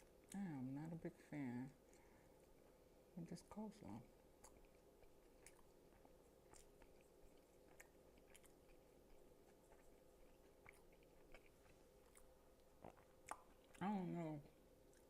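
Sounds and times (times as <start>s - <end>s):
faint chewing: 0.0s - 1.0s, 1.7s - 2.9s, 3.5s - 15.0s
low room hum: 0.0s - 15.0s
soft wet mouth clicks: 12.8s - 13.8s.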